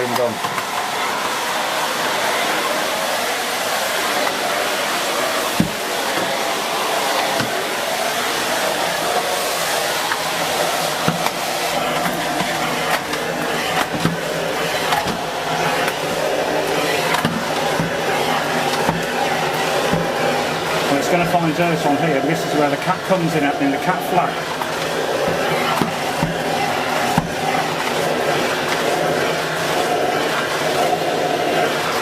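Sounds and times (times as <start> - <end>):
vacuum cleaner running: 0.0 - 32.0
vacuum head knocking: 5.5 - 6.4, 7.2 - 7.8, 10.0 - 21.6, 24.2 - 29.0.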